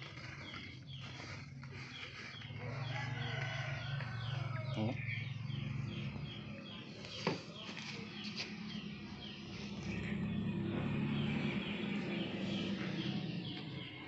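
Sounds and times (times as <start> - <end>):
low hum: 8.8 - 14.0.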